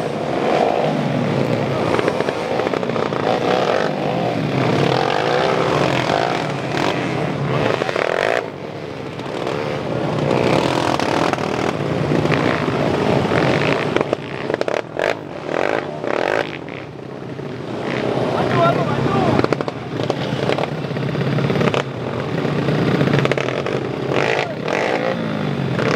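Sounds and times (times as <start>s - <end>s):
dirt bike engines revving: 0.0s - 25.9s.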